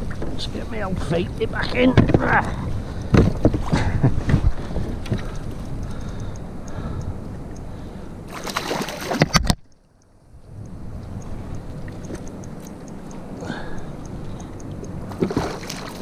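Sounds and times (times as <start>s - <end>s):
light ticks: 2.4s - 3.2s, 4.6s - 7.9s, 9.6s - 15.0s
water sloshing against kayak hull: 13.8s - 16.0s.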